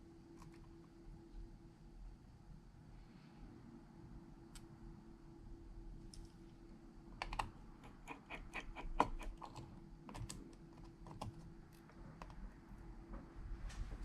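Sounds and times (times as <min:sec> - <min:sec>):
faint steady hum: 0:00.0 - 0:14.0
small tools clicking on phone: 0:07.2 - 0:12.4.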